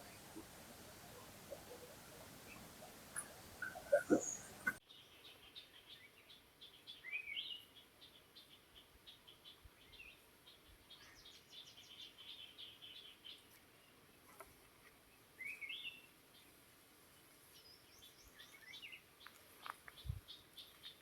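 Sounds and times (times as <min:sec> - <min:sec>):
faint hiss: 0:00.0 - 0:04.8
songbirds chirping: 0:00.0 - 0:14.4, 0:15.0 - 0:21.0.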